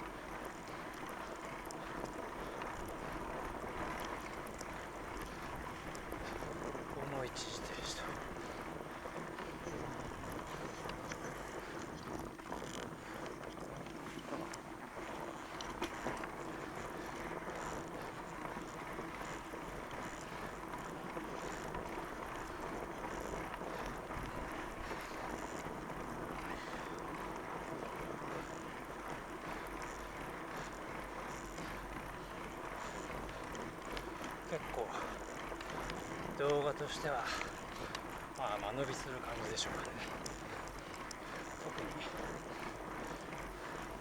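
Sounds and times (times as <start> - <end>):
bike tyres rolling over snow: 0.0 - 44.0
rider breathing: 0.0 - 44.0.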